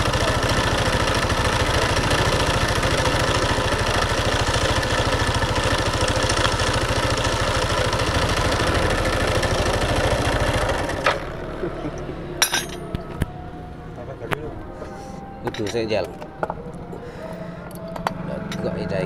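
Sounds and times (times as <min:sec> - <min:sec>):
motorcycle engine idling: 0:00.0 - 0:14.7
sharp metallic clinks: 0:12.4 - 0:13.0.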